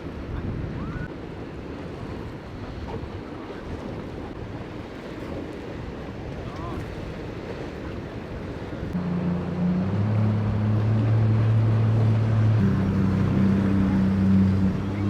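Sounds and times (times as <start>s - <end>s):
boat engines droning: 0.0s - 15.0s
surf: 0.0s - 15.0s
wind noise: 0.0s - 15.0s.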